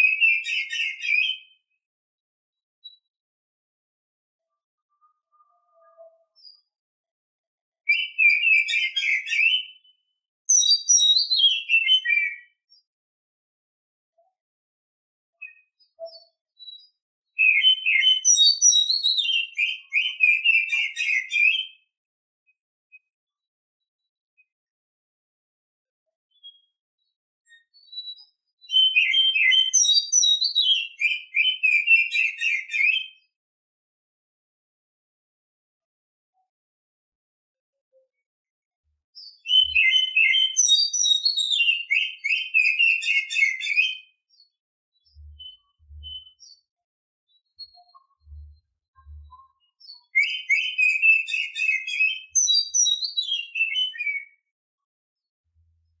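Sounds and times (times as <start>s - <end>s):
bird singing whistled notes: 0.0s - 1.6s, 5.0s - 6.7s, 7.9s - 12.8s, 15.4s - 21.9s, 27.5s - 33.3s, 39.2s - 46.7s, 47.4s - 54.5s.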